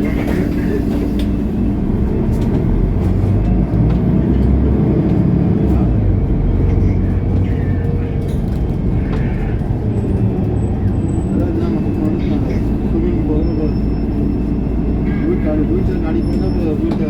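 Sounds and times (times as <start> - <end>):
bus body clicks and rattles: 0.0 - 1.5, 2.2 - 5.8, 6.7 - 11.2, 16.8 - 17.0
bus diesel engine running: 0.0 - 17.0.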